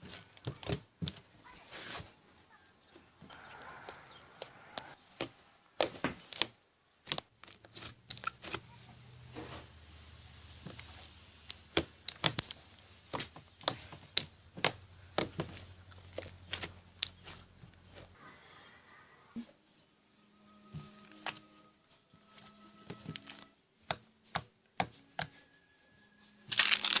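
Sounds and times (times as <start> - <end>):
slime popping and crackling: 4.7 - 8.6, 10.6 - 18.0, 26.5 - 27.0.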